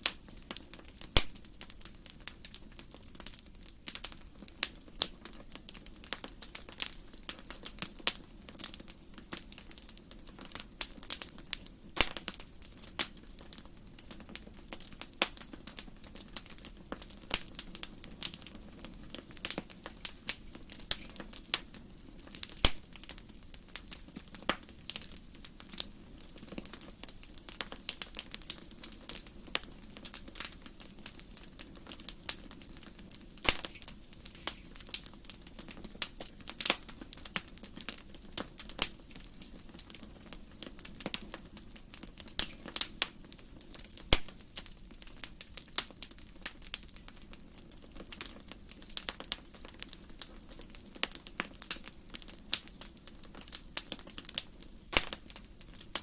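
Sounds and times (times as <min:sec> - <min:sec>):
wood fire crackling: 0:00.0 - 0:56.0
sharp pops: 0:12.0 - 0:12.3, 0:33.4 - 0:34.6, 0:44.1 - 0:44.4, 0:54.9 - 0:55.2.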